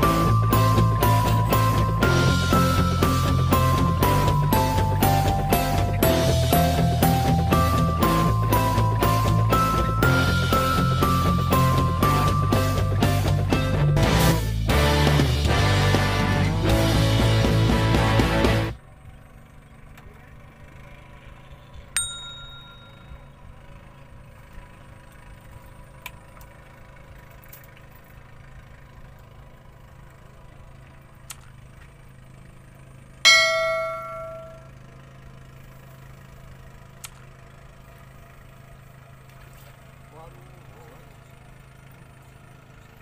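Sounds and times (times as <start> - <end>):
ringing metallic strikes: 0.0 - 13.9, 22.0 - 23.3, 33.3 - 34.8
low engine hum: 0.0 - 43.0.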